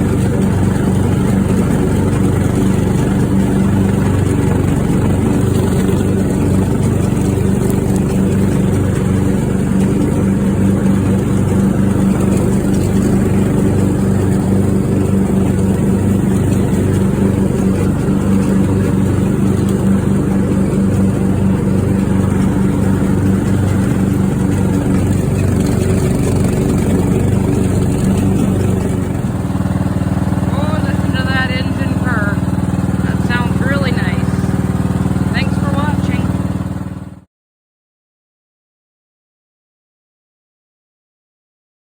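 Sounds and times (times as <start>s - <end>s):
riding mower engine running: 0.0s - 37.3s.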